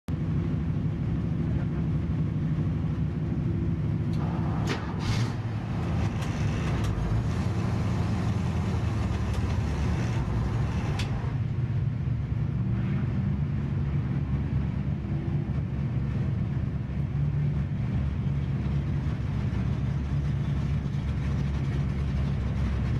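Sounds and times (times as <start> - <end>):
car engine idling: 0.2 - 11.8
rough hissing noise: 4.2 - 11.3
sharp clicks: 5.6 - 11.3.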